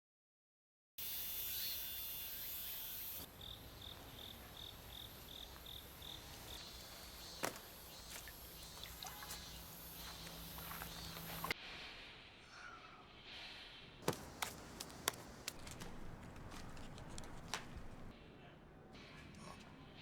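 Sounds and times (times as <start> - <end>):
cricket chirping: 1.0 - 11.5.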